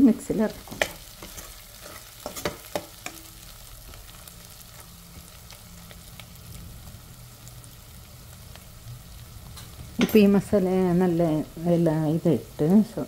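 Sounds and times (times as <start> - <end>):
masala sizzling in oil: 0.0 - 13.0
metal spoon scraping pan: 0.5 - 3.3.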